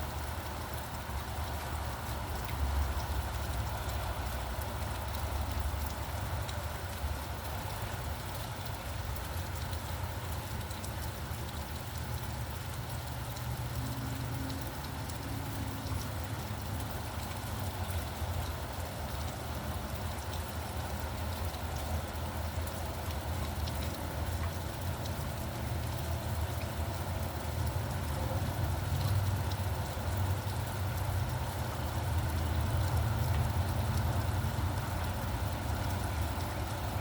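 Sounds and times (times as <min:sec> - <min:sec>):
rain falling: 0:00.0 - 0:37.0
raindrop ticks: 0:00.0 - 0:37.0
traffic rumble: 0:13.4 - 0:37.0.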